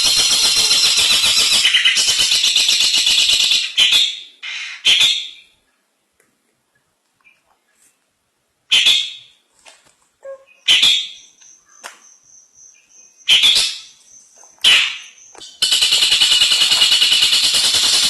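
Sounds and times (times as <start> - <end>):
bird rapid chatter: 0.0 - 5.2, 14.6 - 18.0
bird harsh calls: 0.0 - 5.5, 10.2 - 18.0.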